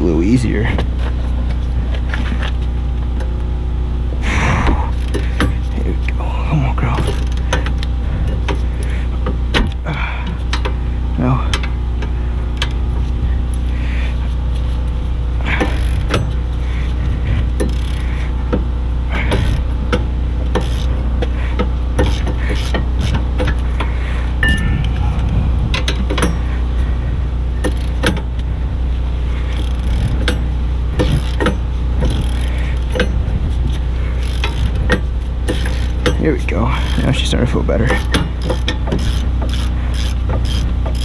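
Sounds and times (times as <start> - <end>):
constant low hum: 0.0 - 41.0
hand tools clicking on metal: 17.6 - 23.7, 29.5 - 41.0.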